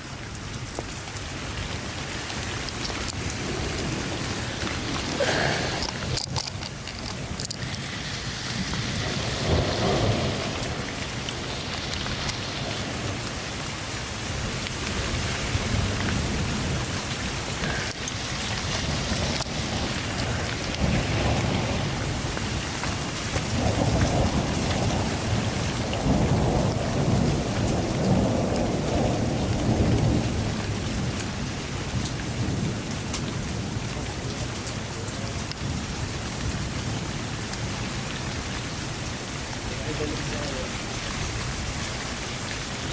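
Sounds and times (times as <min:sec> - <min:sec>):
heavy rain pouring: 0:00.0 - 0:42.9
low rumbling: 0:01.4 - 0:13.5.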